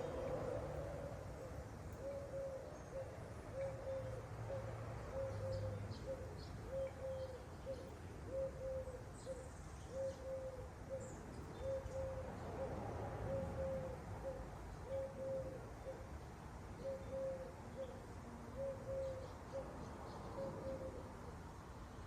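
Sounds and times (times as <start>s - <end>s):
small birds chirping: 0.0s - 12.3s
dove cooing: 0.0s - 16.1s, 16.8s - 21.4s.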